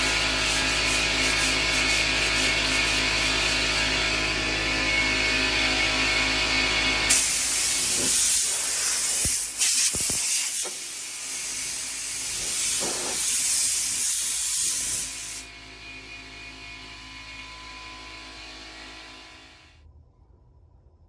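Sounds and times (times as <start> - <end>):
spray paint hissing: 7.1 - 15.4.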